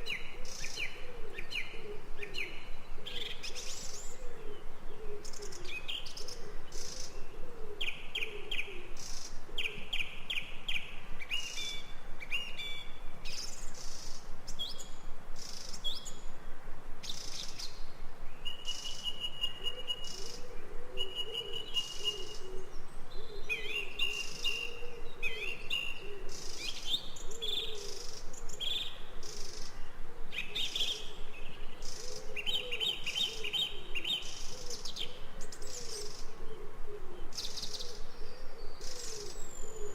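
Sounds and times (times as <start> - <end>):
low wavering cooing: 0.0 - 9.9, 19.5 - 28.3, 29.0 - 39.9
birds chirping and trilling: 0.0 - 39.9.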